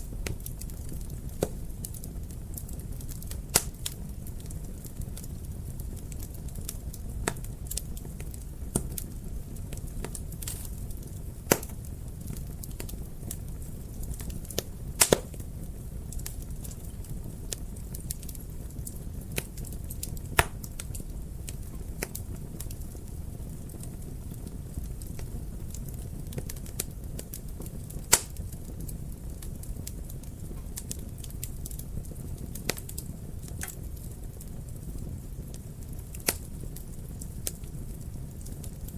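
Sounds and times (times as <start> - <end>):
fire crackling in fireplace: 0.0 - 38.9.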